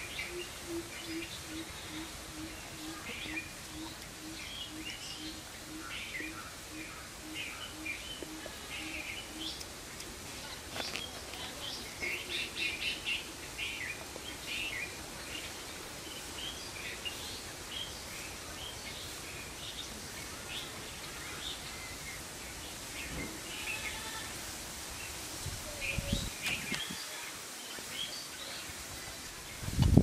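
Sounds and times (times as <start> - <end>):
steady background hiss: 0.0 - 30.0
birds chirping: 25.0 - 29.6.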